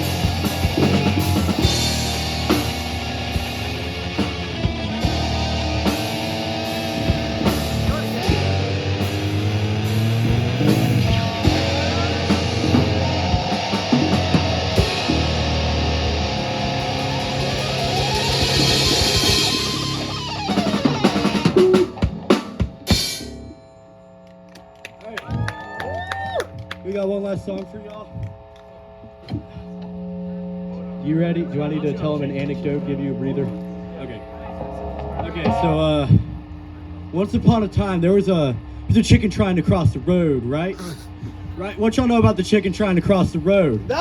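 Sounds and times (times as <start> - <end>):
live rock band playing: 0.0 - 23.7.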